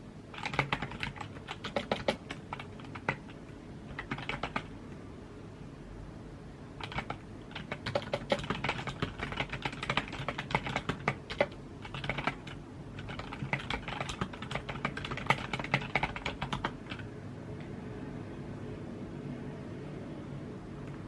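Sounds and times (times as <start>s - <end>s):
low background hum: 0.0s - 21.0s
computer keyboard typing: 0.3s - 4.8s, 6.8s - 17.1s.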